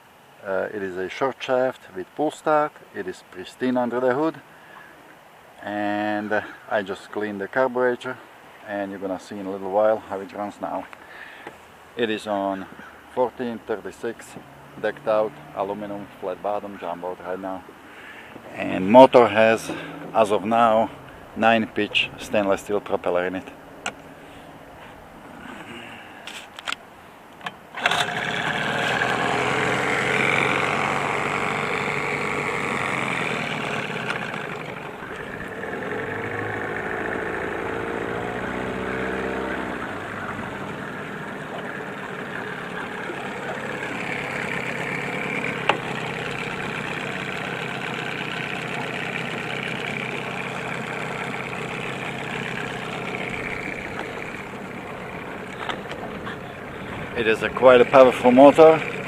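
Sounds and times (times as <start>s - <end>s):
outboard motor running: 12.4s - 26.1s, 27.7s - 59.0s
pull cord starting: 27.4s - 36.4s, 41.3s - 56.3s.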